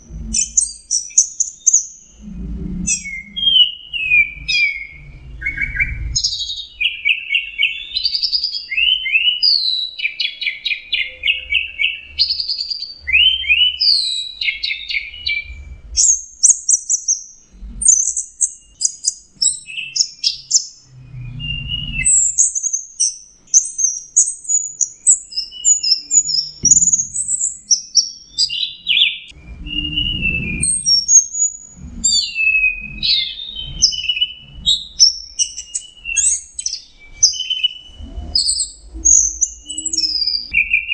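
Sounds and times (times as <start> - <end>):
thrush singing whistled trills: 0.0 - 40.9.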